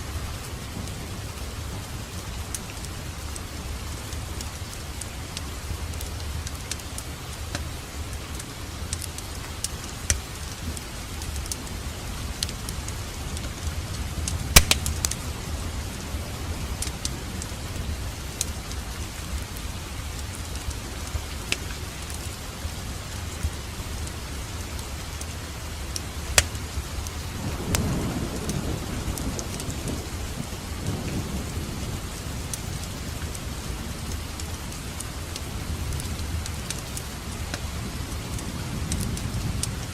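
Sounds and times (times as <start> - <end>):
low rumble of fire: 0.0 - 39.9
fire hissing: 14.5 - 15.2
fire sharp pops: 14.5 - 15.3, 26.0 - 26.8.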